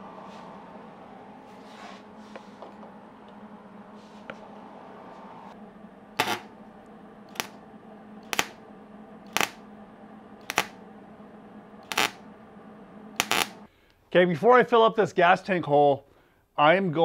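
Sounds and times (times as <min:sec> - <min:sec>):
steady low hum: 0:00.0 - 0:14.0
welding arc crackle: 0:06.2 - 0:06.6, 0:07.2 - 0:09.7, 0:10.4 - 0:10.8, 0:11.8 - 0:12.3, 0:13.1 - 0:13.7.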